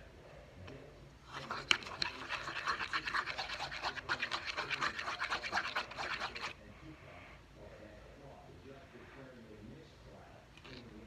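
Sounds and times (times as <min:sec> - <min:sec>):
slime stirred in container: 0:01.2 - 0:06.6.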